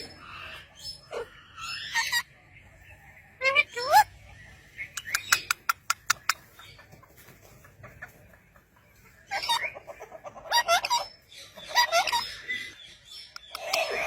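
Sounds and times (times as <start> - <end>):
parrot squawking: 0.2 - 2.3, 10.4 - 12.8, 13.4 - 14.0
sharp clicks: 5.0 - 6.4.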